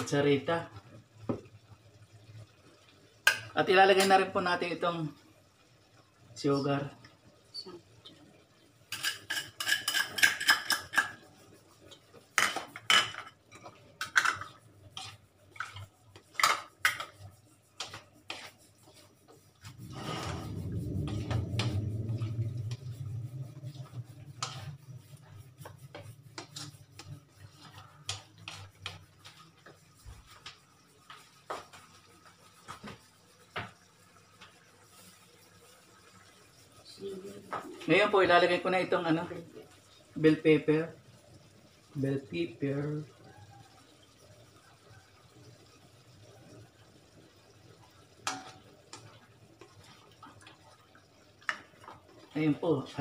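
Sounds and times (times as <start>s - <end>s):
turner scraping a wok: 8.9s - 33.6s
low hum: 19.6s - 27.4s.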